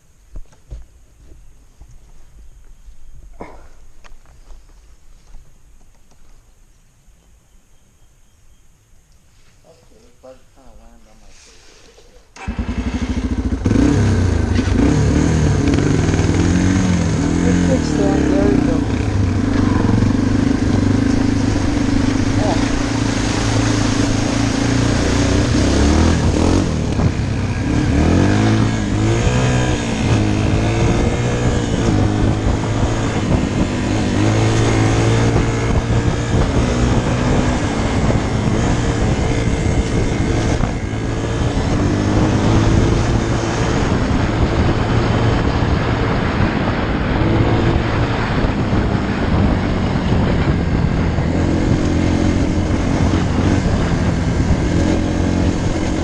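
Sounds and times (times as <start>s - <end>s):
dirt bike engine revving: 12.4s - 56.0s.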